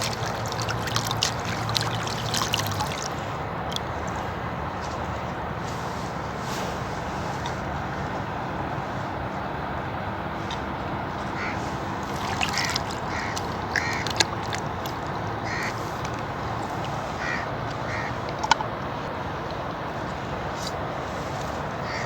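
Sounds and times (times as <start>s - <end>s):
steady outdoor hiss: 0.0s - 22.0s
short bird calls: 11.4s - 11.7s, 12.5s - 14.1s, 15.4s - 15.8s, 17.2s - 18.2s.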